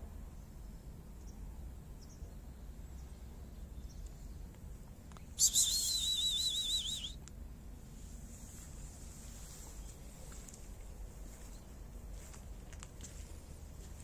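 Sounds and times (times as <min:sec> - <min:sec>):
low background rumble: 0:00.0 - 0:14.0
bird warbling call: 0:05.4 - 0:07.2.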